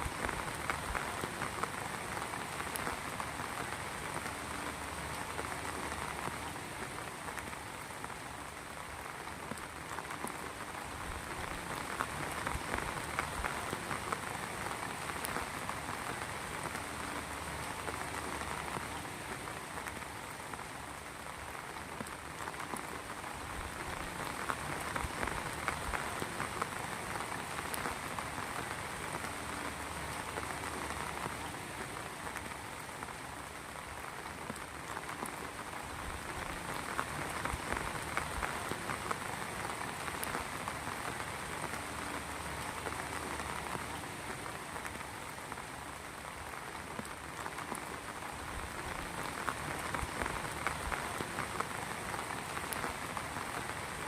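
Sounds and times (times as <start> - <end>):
rain patter: 0.0 - 54.0.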